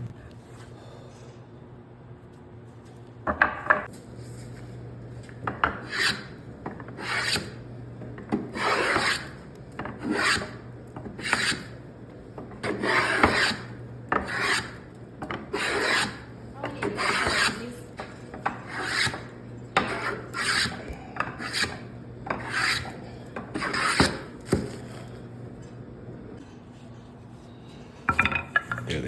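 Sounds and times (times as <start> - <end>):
steady low hum: 0.0 - 29.0
hand tool cutting wood: 12.6 - 14.8.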